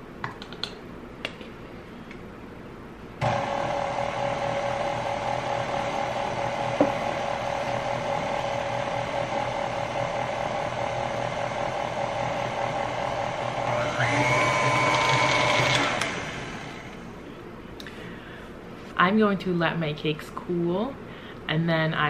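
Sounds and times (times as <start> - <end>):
stand mixer motor running: 3.2 - 17.0.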